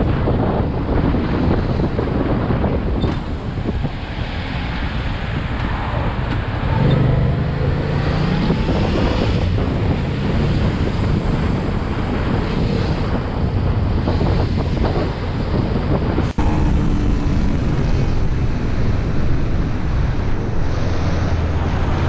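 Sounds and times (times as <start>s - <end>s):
wind buffeting microphone: 16.0s - 22.0s
motorcycle engine running: 16.2s - 22.0s.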